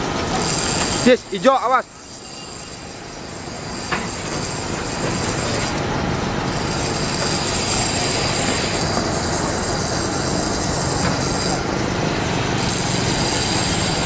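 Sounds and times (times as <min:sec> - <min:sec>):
train wheels rumbling on rail: 0:00.0 - 0:01.3, 0:02.2 - 0:14.0
thin high tone: 0:01.6 - 0:05.7.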